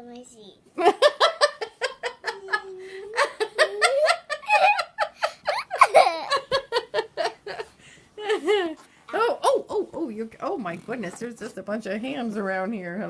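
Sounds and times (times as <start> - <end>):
person laughing in bursts: 0.8 - 8.8.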